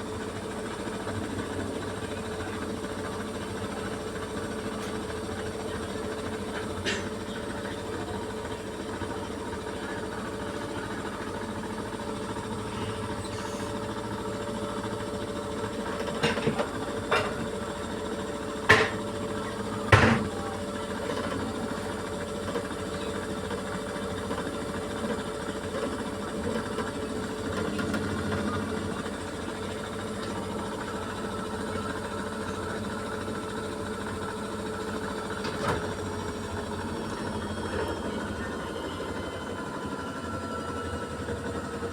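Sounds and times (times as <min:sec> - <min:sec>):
washing machine spinning: 0:00.0 - 0:41.9
washing machine knocks: 0:19.8 - 0:20.4.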